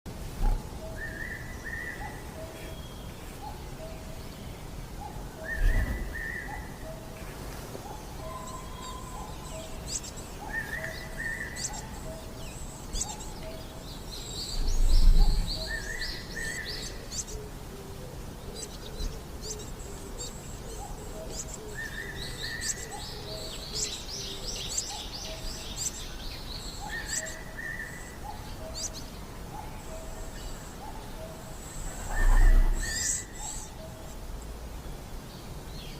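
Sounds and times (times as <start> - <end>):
high thin bird twittering: 29.7 - 34.1.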